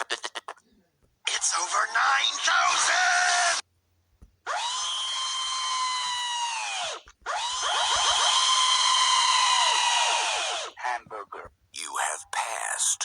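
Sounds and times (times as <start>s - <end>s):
high whining tone sliding down: 4.6s - 10.7s.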